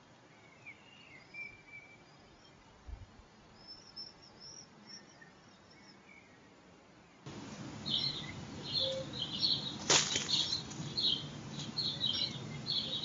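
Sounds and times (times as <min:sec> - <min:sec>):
small birds chirping: 0:03.5 - 0:13.0
bird wings flapping: 0:09.8 - 0:10.9.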